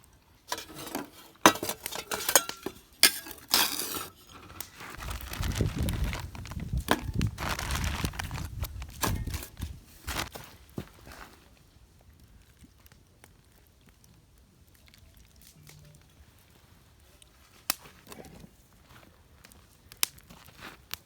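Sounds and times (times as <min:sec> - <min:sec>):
cookware and utensils clinking: 0:00.5 - 0:04.7.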